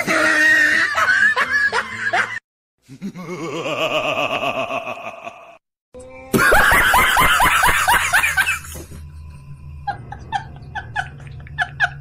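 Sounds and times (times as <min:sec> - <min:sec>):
loud laughter: 0:00.0 - 0:05.6, 0:06.3 - 0:08.9, 0:09.9 - 0:12.0
low hum: 0:08.1 - 0:12.0.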